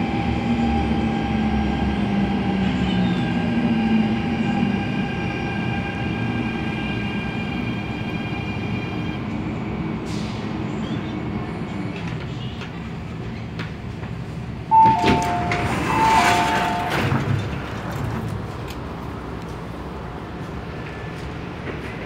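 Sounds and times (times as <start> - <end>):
train hum: 0.0 - 22.0
two-tone door chime: 14.7 - 17.3
sliding doors rushing: 14.7 - 19.0.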